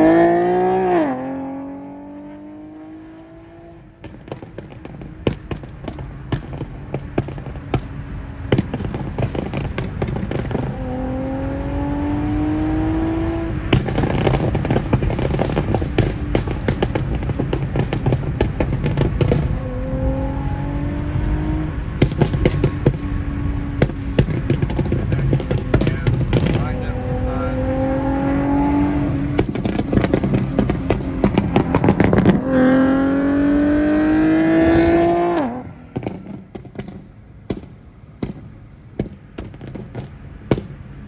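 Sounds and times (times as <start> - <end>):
car engine revving: 0.0 - 41.0
exhaust popping and crackling: 0.0 - 41.0.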